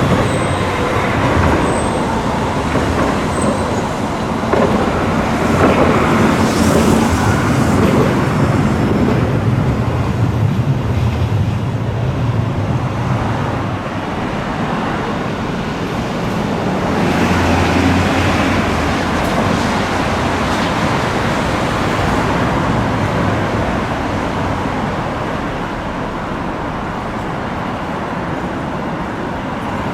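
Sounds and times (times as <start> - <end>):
road traffic: 0.0 - 29.9
tram running on track: 0.0 - 29.9.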